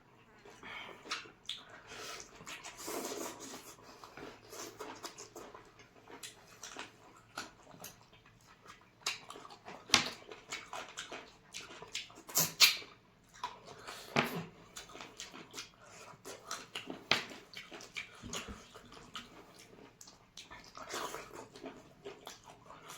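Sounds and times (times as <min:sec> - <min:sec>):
people chewing and lip-smacking: 0:00.2 - 0:22.9.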